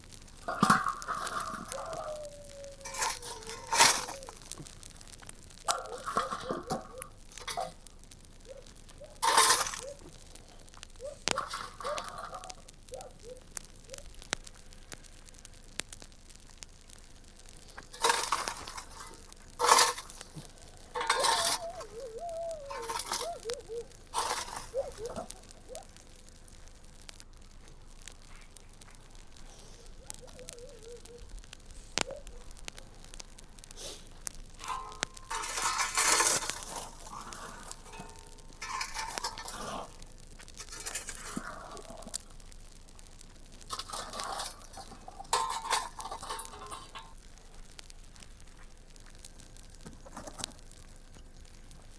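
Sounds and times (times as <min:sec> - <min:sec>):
crinkling rustle: 0:00.0 - 0:51.9
faint clicks: 0:00.4 - 0:51.9
wavering tone: 0:21.0 - 0:23.9.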